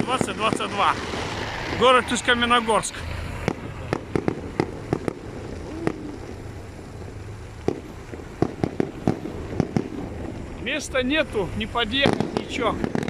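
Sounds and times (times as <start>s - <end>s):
low background rumble: 0.0s - 13.0s
distant fireworks bangs: 3.3s - 13.0s.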